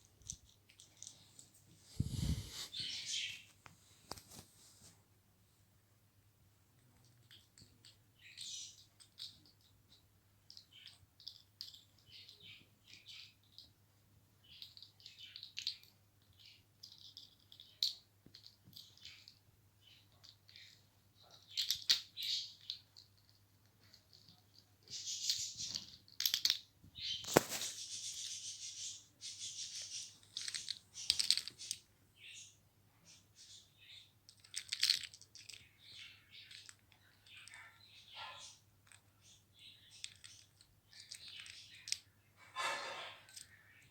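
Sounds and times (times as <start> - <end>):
parrot rattling toys: 20.2 - 32.4, 34.3 - 43.6.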